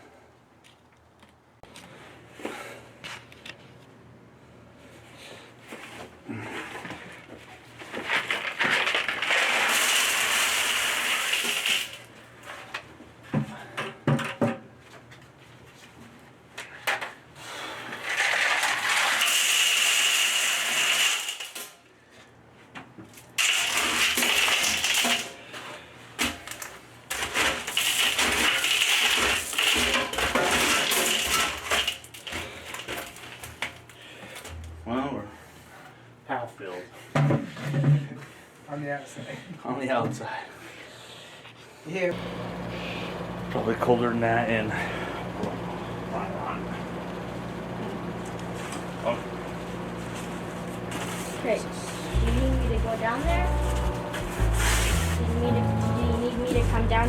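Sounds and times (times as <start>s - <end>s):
gravel pouring and rattling: 8.0s - 12.0s, 27.2s - 32.2s, 42.4s - 52.8s.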